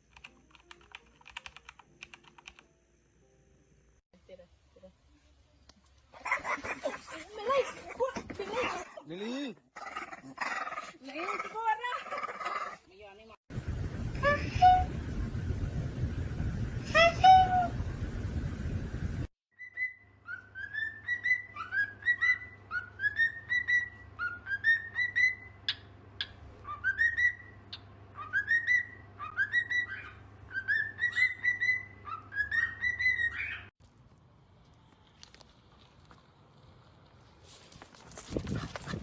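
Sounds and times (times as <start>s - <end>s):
faint low hum: 13.5s - 19.3s.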